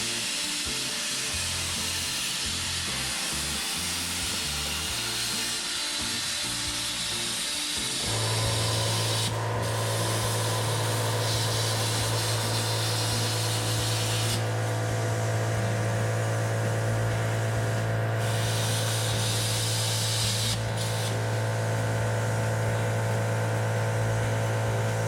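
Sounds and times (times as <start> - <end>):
plasma cutter hissing: 0.0 - 25.0.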